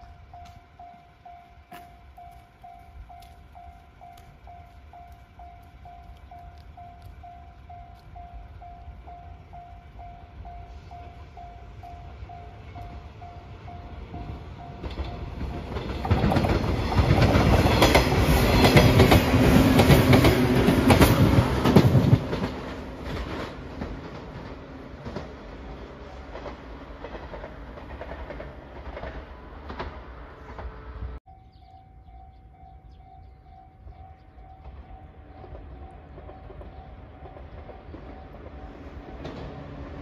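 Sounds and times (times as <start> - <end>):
level crossing warning bell: 0.0 - 18.1, 31.2 - 39.5
electric train passing: 0.0 - 40.0
train wheels clicking over rail joints: 14.0 - 31.2, 34.6 - 40.0.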